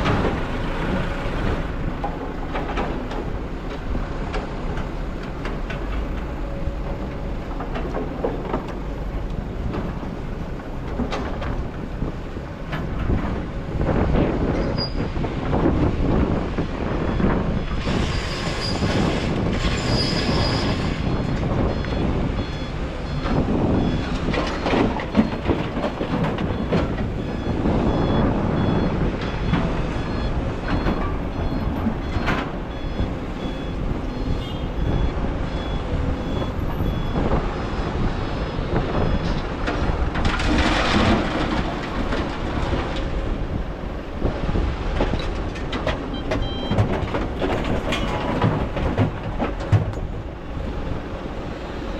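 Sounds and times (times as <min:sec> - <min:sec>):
excavator engine and hydraulics: 0:00.0 - 0:51.9
backup alarm beeping: 0:21.0 - 0:25.5, 0:26.4 - 0:39.3, 0:46.1 - 0:46.8.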